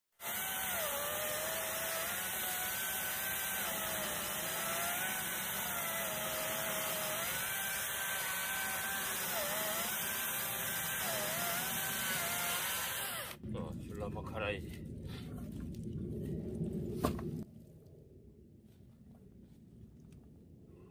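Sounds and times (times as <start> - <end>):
electric chainsaw cutting wood: 0.1 - 13.4.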